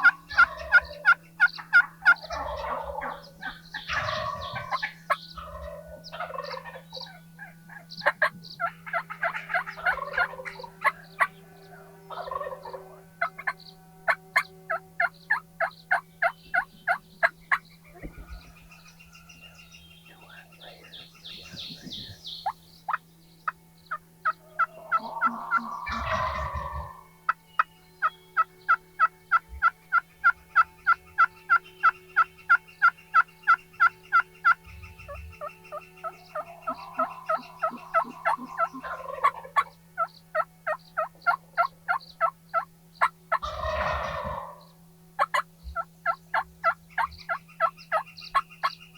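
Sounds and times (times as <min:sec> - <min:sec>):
turkeys gobbling: 0:00.0 - 0:19.4, 0:21.3 - 0:48.9
short turkey call notes: 0:24.6 - 0:27.7, 0:36.0 - 0:42.6.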